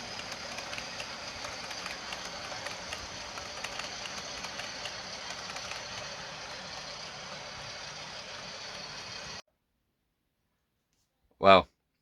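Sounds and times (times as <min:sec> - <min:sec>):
model train rumbling and whirring: 0:00.0 - 0:09.4
wheels clicking over rail joints: 0:00.0 - 0:09.4.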